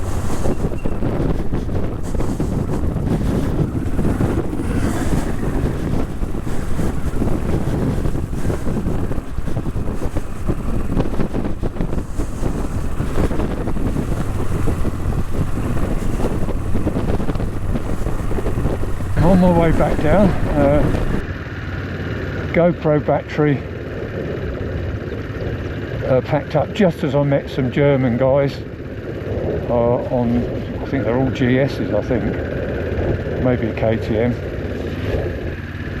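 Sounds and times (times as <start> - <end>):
wind buffeting microphone: 0.0 - 21.4
motorcycle engine running: 0.0 - 36.0.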